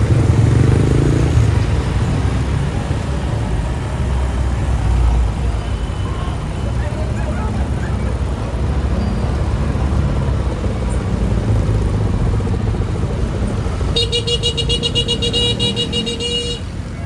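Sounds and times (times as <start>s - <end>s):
road noise: 0.0s - 17.0s
vehicle horn buzzing: 13.9s - 16.8s.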